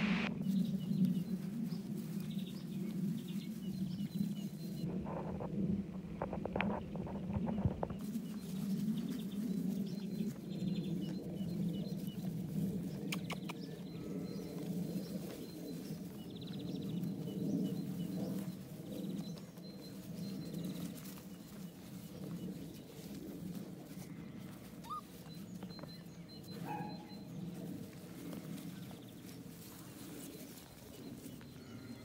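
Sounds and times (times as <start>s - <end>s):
steady low hum: 0.0s - 1.6s
birds chirping and trilling: 6.2s - 29.4s.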